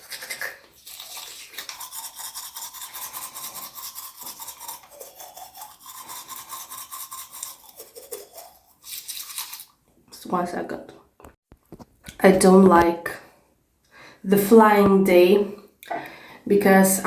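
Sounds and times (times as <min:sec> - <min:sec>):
toothbrush scrubbing teeth: 0:00.0 - 0:09.8.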